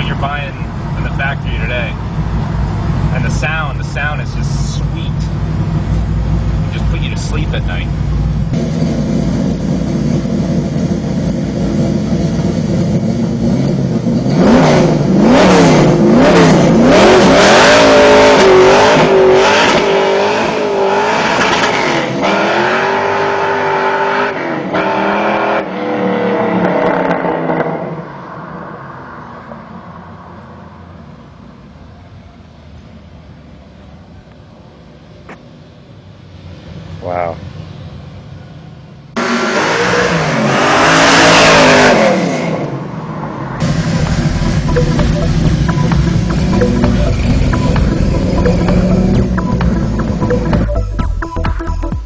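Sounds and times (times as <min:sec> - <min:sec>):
engine revving under throttle: 0:08.5 - 0:28.6, 0:39.2 - 0:50.6.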